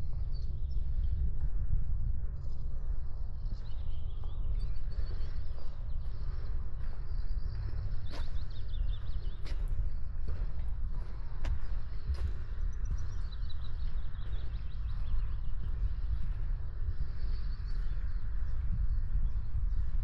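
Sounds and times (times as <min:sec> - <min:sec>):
wind rumbling on microphone: 0:00.0 - 0:20.0
small birds chirping: 0:02.3 - 0:20.0.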